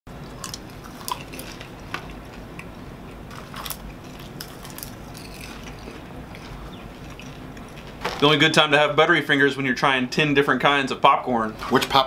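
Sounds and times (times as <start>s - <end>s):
people chewing popcorn: 0.2s - 8.1s
crisp crunches: 0.4s - 2.7s, 3.3s - 8.3s.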